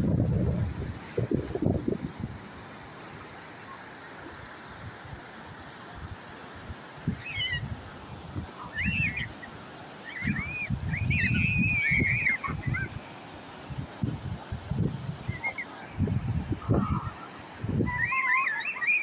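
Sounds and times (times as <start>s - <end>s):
wind on the microphone: 0.0s - 2.6s, 5.9s - 9.4s, 10.1s - 18.6s
surf washing up a beach: 0.0s - 19.0s.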